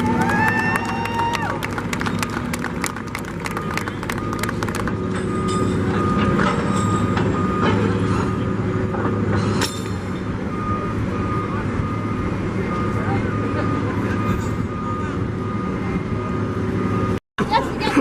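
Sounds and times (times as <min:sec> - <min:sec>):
diesel engine running: 0:00.0 - 0:18.0
backup alarm beeping: 0:03.4 - 0:07.8, 0:10.4 - 0:16.0.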